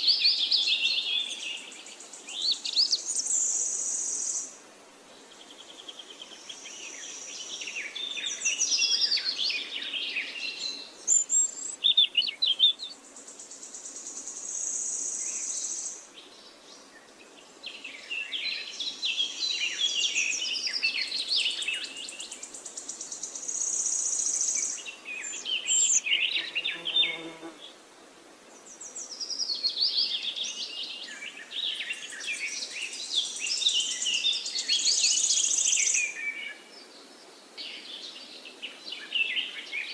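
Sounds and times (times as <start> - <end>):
birds chirping and trilling: 17.7 - 27.6.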